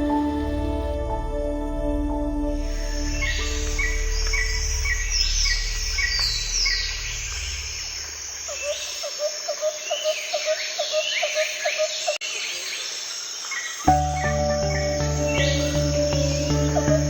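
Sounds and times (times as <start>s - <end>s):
low hum: 0.0s - 8.5s
birds chirping and whistling: 2.8s - 9.1s, 13.8s - 17.0s.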